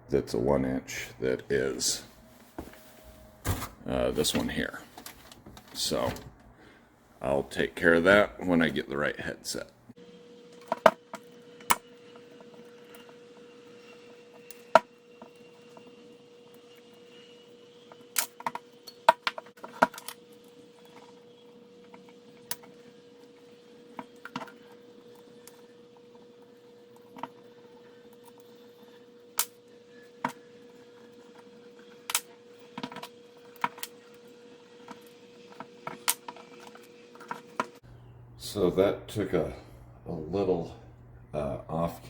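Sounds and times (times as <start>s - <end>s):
faint steady hum: 20.4s - 42.0s.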